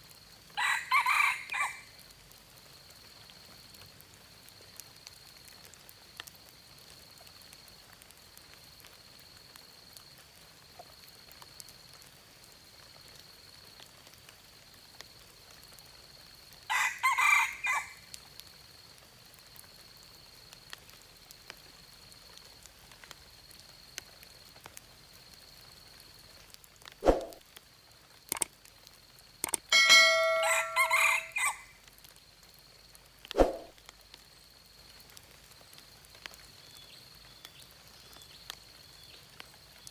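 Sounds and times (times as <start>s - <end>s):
rooster crowing: 0.6s - 1.9s, 16.7s - 18.0s, 29.8s - 31.7s
faint high-pitched tone: 29.7s - 31.6s.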